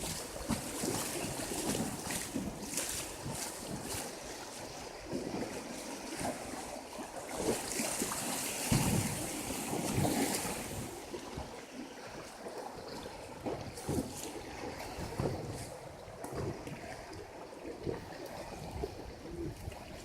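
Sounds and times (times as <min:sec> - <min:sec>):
river water rushing and splashing: 0:00.0 - 0:20.0
wind on microphone: 0:07.3 - 0:20.0.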